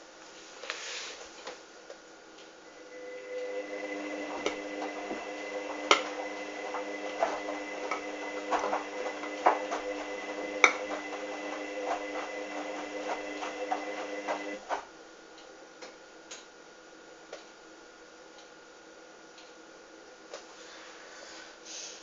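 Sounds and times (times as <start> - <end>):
washing machine motor hum: 2.7 - 14.9.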